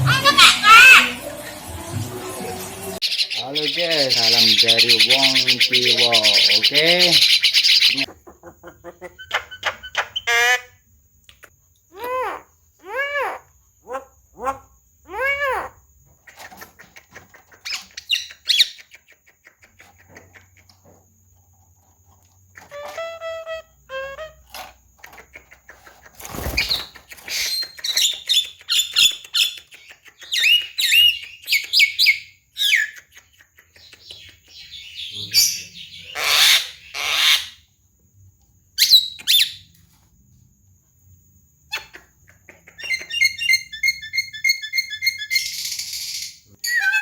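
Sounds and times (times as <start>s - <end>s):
myna bird calling: 3.0s - 10.7s.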